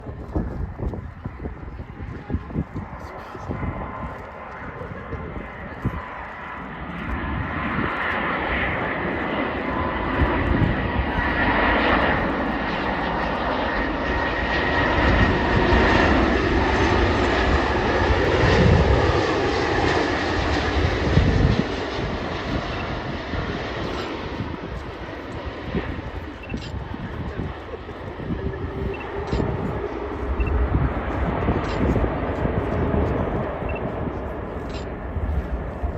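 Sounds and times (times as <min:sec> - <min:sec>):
jet engines rushing: 0:00.0 - 0:35.9
high engine whine: 0:13.6 - 0:35.9.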